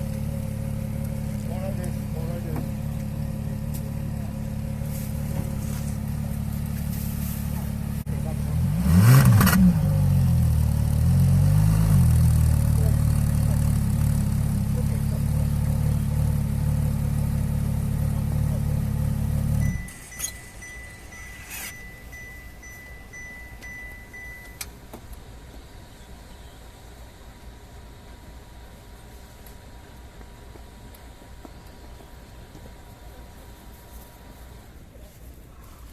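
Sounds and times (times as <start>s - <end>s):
car engine idling: 0.0s - 35.9s
steady high electronic beep: 19.5s - 24.7s
fast pulsing beep: 19.6s - 24.6s
throttle blip: 19.6s - 24.8s.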